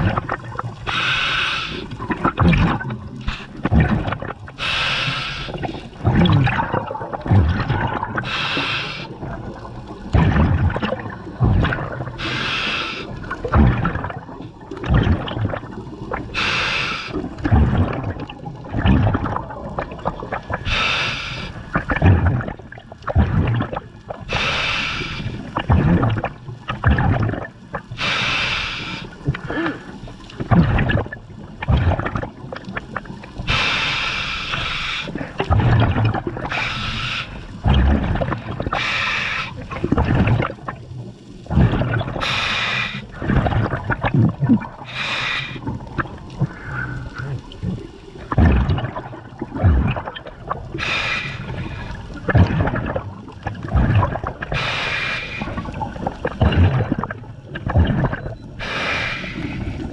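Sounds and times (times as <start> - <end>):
gurgling exhaled bubbles: 0.0 - 59.9
regulator hiss on inhale: 0.9 - 1.9, 4.6 - 5.8, 8.2 - 9.2, 12.2 - 13.1, 16.4 - 17.2, 20.7 - 21.6, 24.3 - 25.4, 28.0 - 30.0, 33.5 - 35.2, 36.5 - 37.6, 38.7 - 39.6, 42.2 - 43.2, 44.8 - 45.8, 50.8 - 52.2, 54.5 - 55.7, 58.6 - 59.9.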